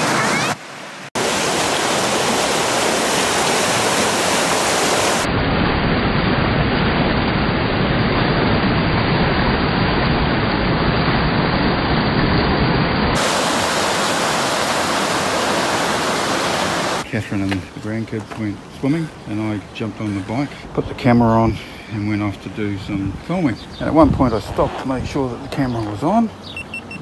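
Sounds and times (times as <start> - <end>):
river water rushing over rapids: 0.0 - 5.3, 13.2 - 17.9.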